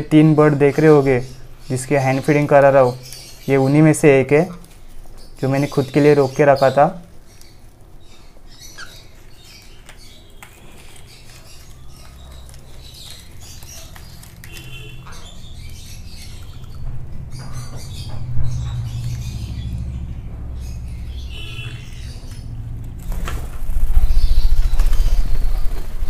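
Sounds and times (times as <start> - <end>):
bird shuffling and scratching: 9.1 - 15.8
faint bird chirps: 20.5 - 22.6.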